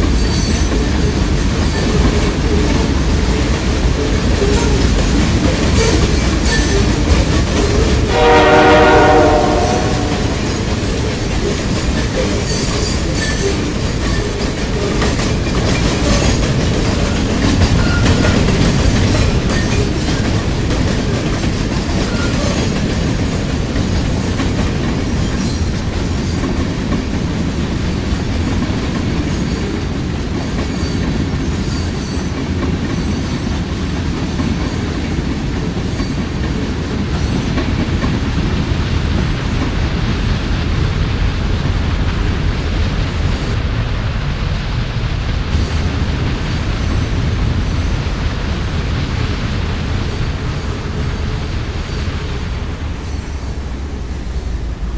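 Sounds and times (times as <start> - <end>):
train wheels clattering on rails: 0.0 - 54.9
train horn blast: 8.0 - 10.8.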